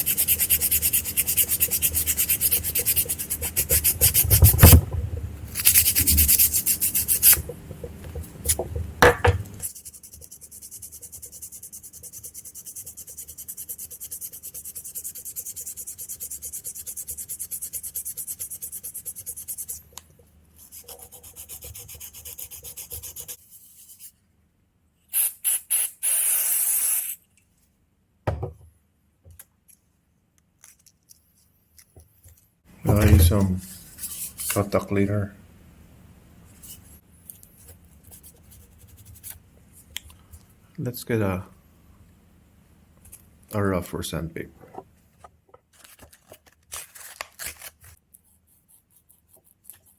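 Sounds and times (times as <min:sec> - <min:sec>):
sandpaper rubbing on metal: 0:00.0 - 0:04.8, 0:05.6 - 0:07.5, 0:25.2 - 0:27.2
knock: 0:04.2 - 0:05.2, 0:08.6 - 0:09.4, 0:28.2 - 0:28.6.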